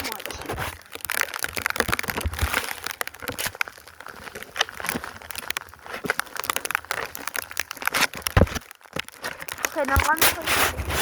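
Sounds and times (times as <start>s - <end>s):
snow crunching and scraping: 0.0s - 1.0s, 9.2s - 11.0s.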